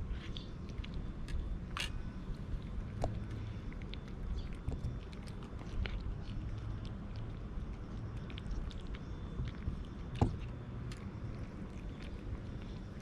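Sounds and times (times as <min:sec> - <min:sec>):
cats chewing and crunching food: 0:00.0 - 0:13.0
low background rumble: 0:00.0 - 0:13.0.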